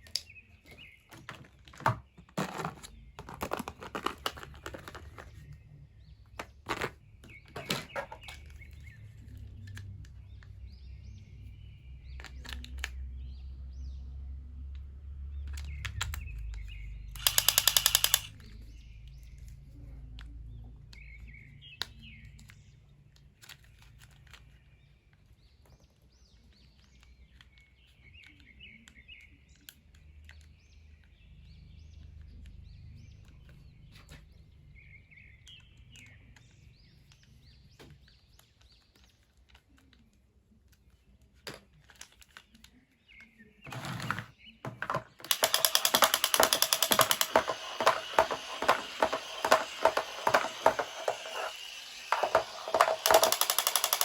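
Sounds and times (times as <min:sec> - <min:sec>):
birds chirping: 0:00.0 - 0:14.0, 0:43.0 - 0:54.0
loud rapid rattling: 0:17.2 - 0:18.3, 0:44.8 - 0:54.0
sharp clicks: 0:17.2 - 0:18.5, 0:44.8 - 0:54.0.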